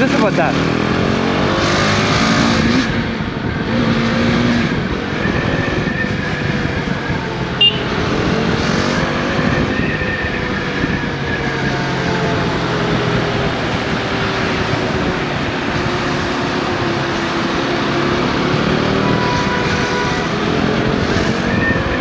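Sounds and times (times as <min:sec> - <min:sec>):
wind and road noise: 0:00.0 - 0:22.0
motorcycle engine running: 0:07.6 - 0:08.0.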